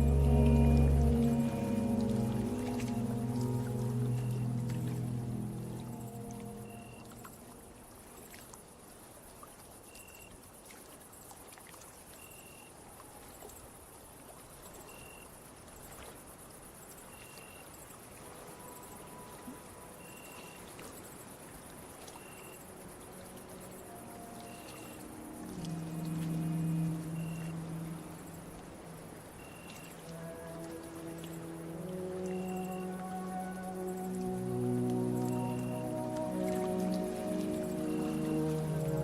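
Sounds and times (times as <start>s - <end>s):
short cricket chirp: 14.8s - 15.3s, 22.2s - 36.8s
crickets chirring: 17.0s - 39.0s
gently moving water: 21.6s - 39.0s.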